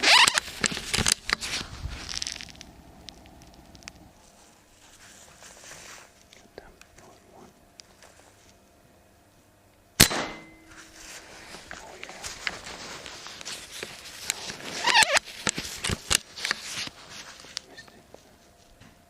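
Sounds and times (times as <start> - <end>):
air rifle shot: 10.0 - 10.7.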